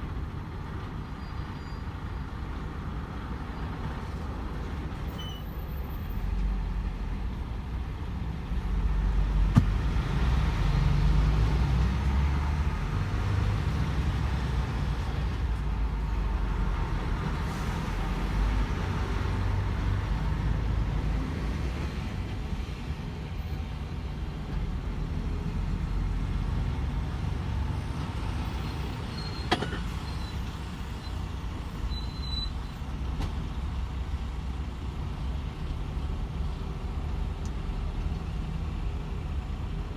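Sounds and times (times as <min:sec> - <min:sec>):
truck engine drone and road rumble: 0:00.0 - 0:39.9.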